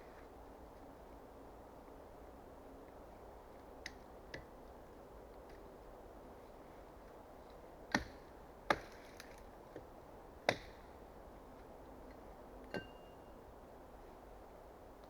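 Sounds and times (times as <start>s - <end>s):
axe chopping wood: 7.9s - 9.3s, 10.5s - 10.9s.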